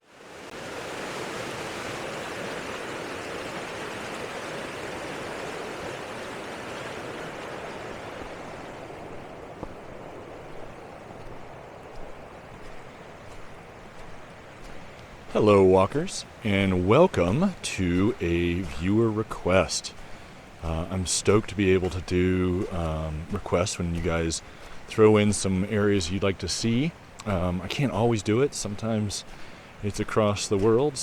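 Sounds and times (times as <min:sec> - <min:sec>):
creek rushing: 0:00.0 - 0:31.0
faint clicks: 0:27.1 - 0:27.4.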